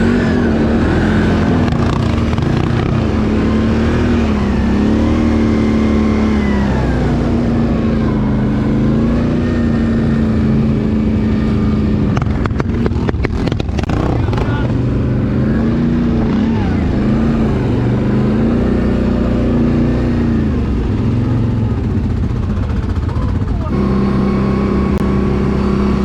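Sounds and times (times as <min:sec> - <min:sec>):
atv engine revving: 0:00.0 - 0:26.0.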